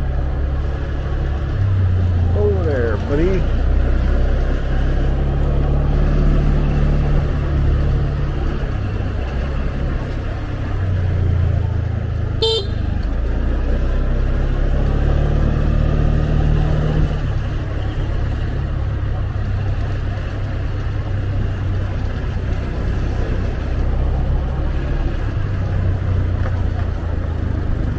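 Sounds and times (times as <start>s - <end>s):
motorbike engine running: 0.0s - 27.9s
road and wind noise: 0.0s - 27.9s
vehicle horn beep: 12.4s - 13.1s.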